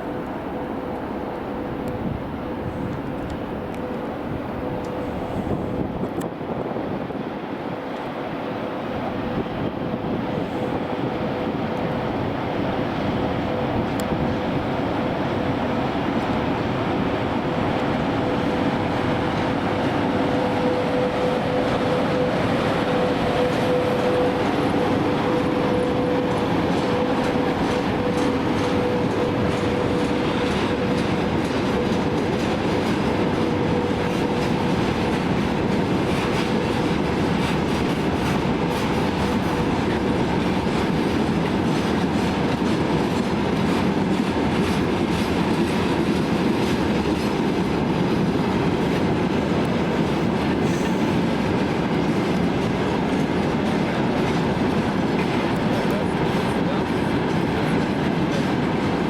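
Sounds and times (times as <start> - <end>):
train rumbling on tracks: 0.0 - 59.0
wheels clicking over rail joints: 13.0 - 59.0.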